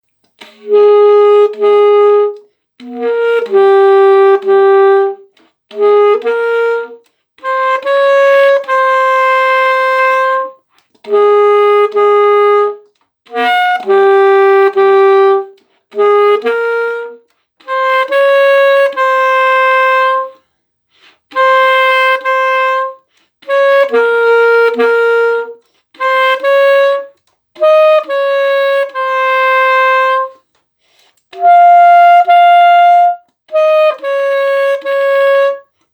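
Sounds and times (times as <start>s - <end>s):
alto saxophone slow melody: 0.3s - 35.9s.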